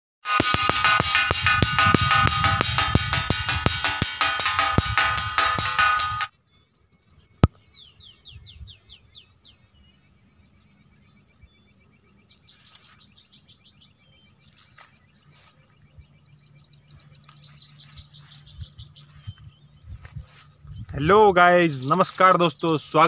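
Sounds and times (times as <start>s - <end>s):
birds chirping: 0.7s - 23.0s.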